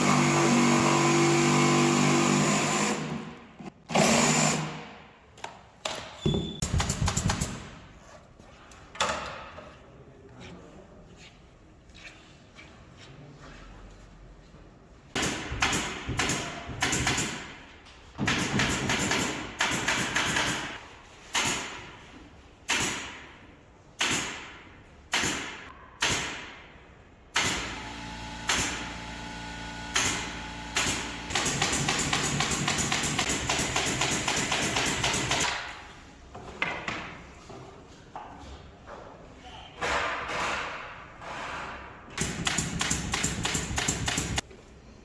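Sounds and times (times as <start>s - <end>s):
power tool running: 27.6s - 33.0s.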